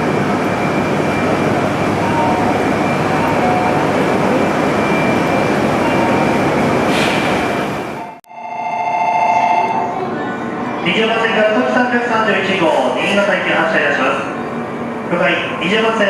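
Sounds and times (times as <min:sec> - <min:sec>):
train rumble and hiss: 0:00.0 - 0:08.0, 0:10.0 - 0:16.0
ringing electronic bell: 0:08.3 - 0:09.9.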